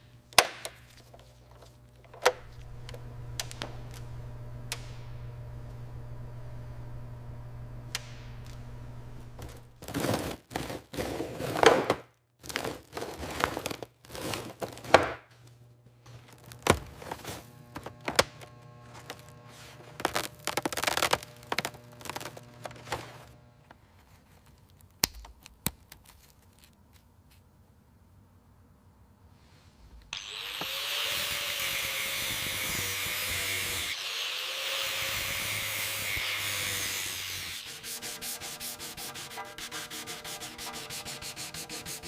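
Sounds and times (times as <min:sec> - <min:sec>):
steady low hum: 0:00.0 - 0:09.9, 0:15.4 - 0:24.0
scraping and rustling: 0:08.4 - 0:25.0.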